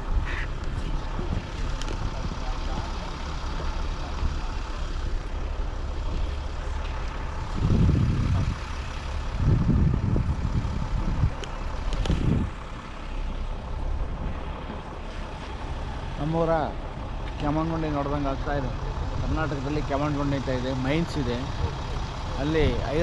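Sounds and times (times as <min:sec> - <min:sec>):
low rumble with surges: 0:00.0 - 0:17.2.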